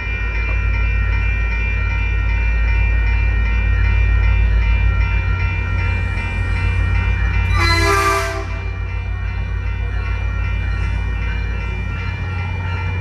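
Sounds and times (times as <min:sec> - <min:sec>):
diesel locomotive engine rumble: 0:00.0 - 0:13.0
locomotive bell ringing: 0:00.0 - 0:13.0
loud train horn blast: 0:07.5 - 0:08.8.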